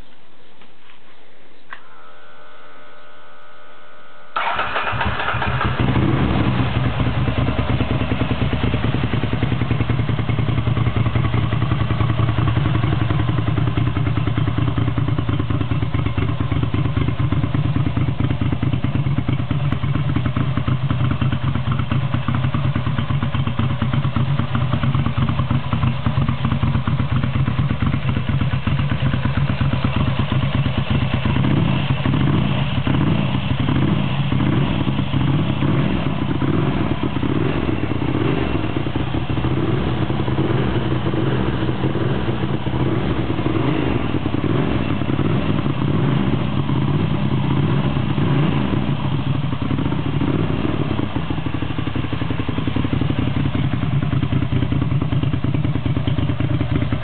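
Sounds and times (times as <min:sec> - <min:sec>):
motorcycle electric starter cranking: 0:04.4 - 0:06.2
motorcycle engine idling: 0:04.4 - 0:57.0.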